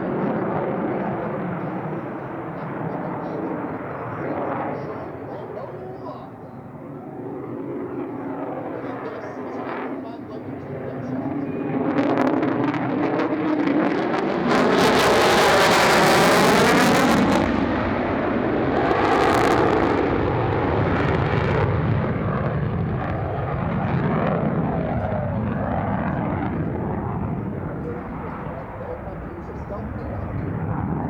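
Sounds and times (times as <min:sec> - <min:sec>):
jet engine passing by: 0:00.0 - 0:31.0.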